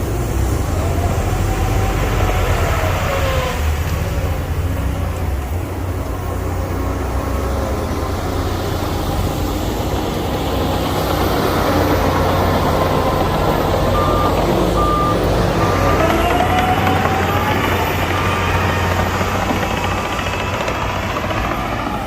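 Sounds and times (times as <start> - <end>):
diesel engine low rumble: 0.0 - 22.0
reversing alarm beeps: 13.9 - 16.9.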